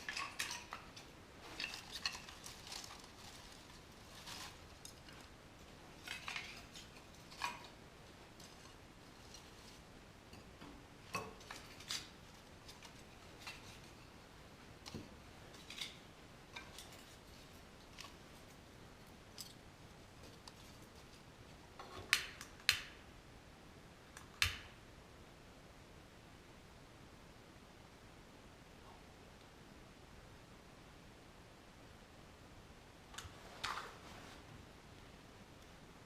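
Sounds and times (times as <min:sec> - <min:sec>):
small objects clicking and clinking: 0:00.0 - 0:05.3.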